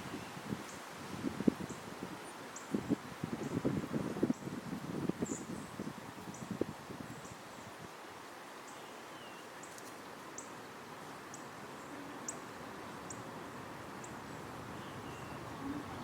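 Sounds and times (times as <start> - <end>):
faint hiss: 0.0 - 16.0
falling calls: 9.9 - 16.0.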